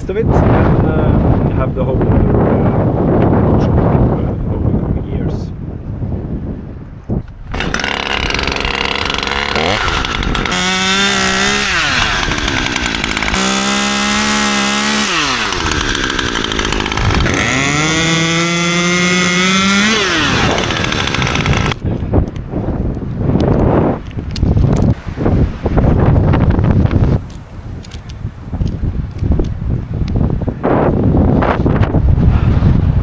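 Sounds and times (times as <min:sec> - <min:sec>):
chainsaw cutting branches: 0:07.2 - 0:21.8.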